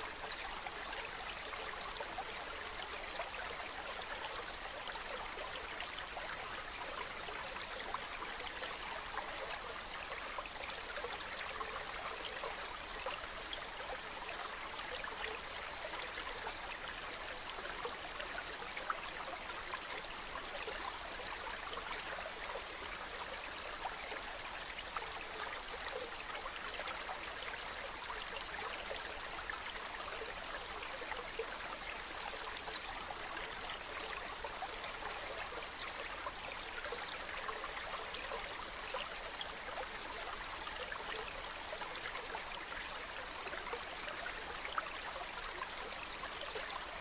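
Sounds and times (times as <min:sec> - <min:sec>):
stream babbling: 0:00.0 - 0:47.0.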